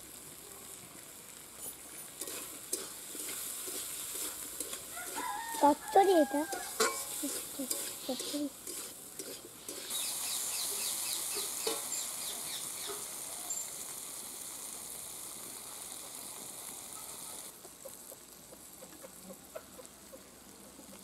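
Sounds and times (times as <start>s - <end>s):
curry sizzling in oil: 0.0s - 21.0s
metal spatula stirring: 1.6s - 10.2s, 11.2s - 12.1s.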